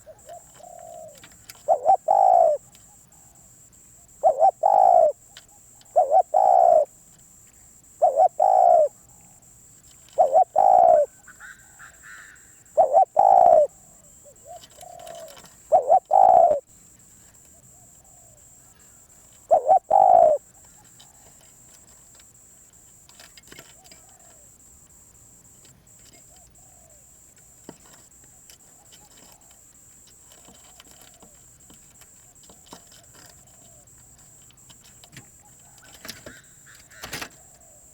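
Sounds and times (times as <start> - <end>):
dove cooing: 0.0 - 7.0, 7.8 - 16.8, 17.4 - 24.9, 25.9 - 37.9
faint bird chirping: 0.0 - 37.9.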